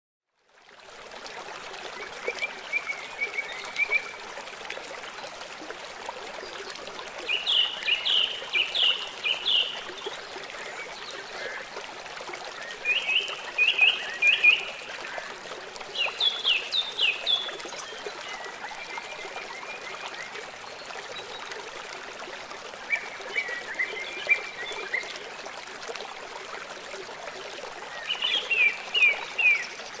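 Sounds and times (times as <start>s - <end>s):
river water running: 0.3s - 30.0s
birds singing: 7.3s - 11.6s, 27.9s - 30.0s.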